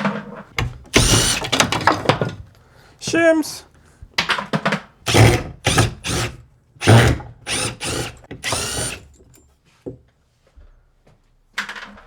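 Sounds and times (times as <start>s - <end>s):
power drill whine: 0.9s - 1.7s, 5.1s - 9.2s.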